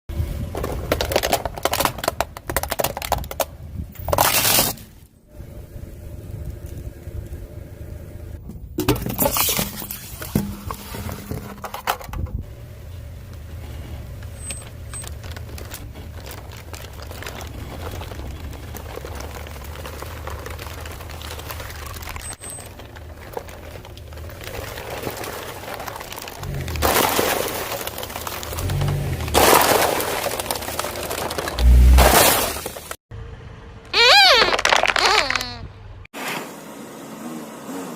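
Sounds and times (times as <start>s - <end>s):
tyre crushing brittle objects: 0.5s - 4.9s, 14.1s - 33.0s, 34.2s - 35.5s.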